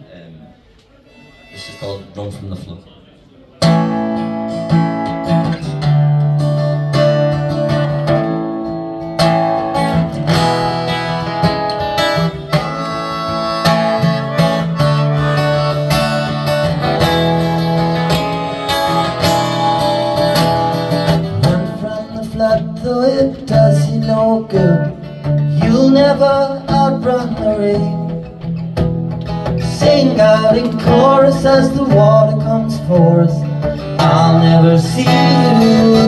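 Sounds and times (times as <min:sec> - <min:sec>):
acoustic guitar strumming: 0:01.1 - 0:02.4, 0:03.6 - 0:36.0.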